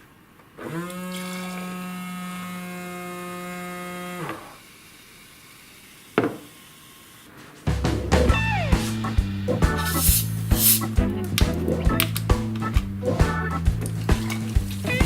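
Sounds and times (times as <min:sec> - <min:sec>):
music: 0:07.7 - 0:15.0.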